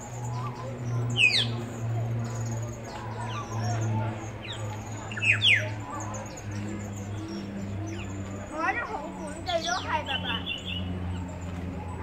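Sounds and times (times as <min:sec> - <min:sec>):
birds whistling: 0:00.0 - 0:12.0.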